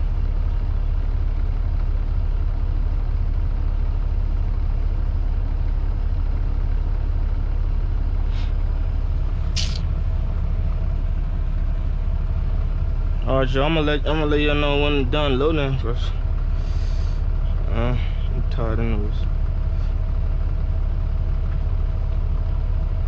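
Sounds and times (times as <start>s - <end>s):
diesel truck engine idling: 0.0s - 23.0s
air brake hisses: 8.3s - 8.6s, 9.5s - 9.9s, 16.6s - 17.2s.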